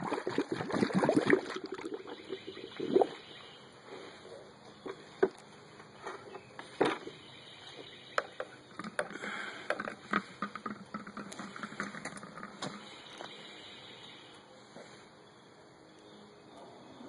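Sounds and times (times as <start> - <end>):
water splashing in a basin: 0.0 - 3.2.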